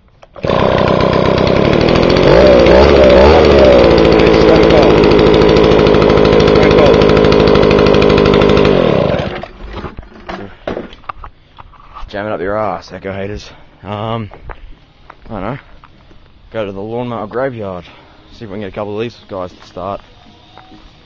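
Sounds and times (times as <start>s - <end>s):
leaf blower engine running: 0.2s - 9.6s.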